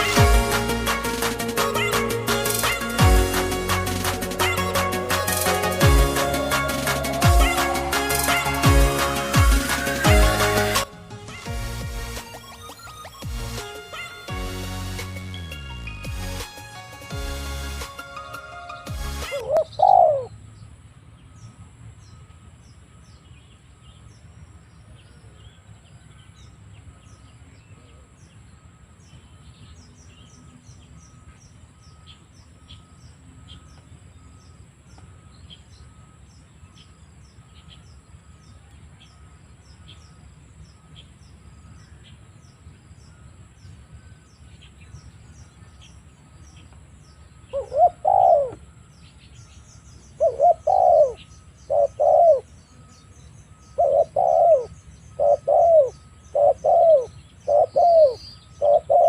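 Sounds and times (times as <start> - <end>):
thin steady high tone: 0.0 - 11.1
dove cooing: 1.6 - 10.8, 19.3 - 20.4, 47.5 - 48.7, 50.1 - 52.6, 53.7 - 59.0.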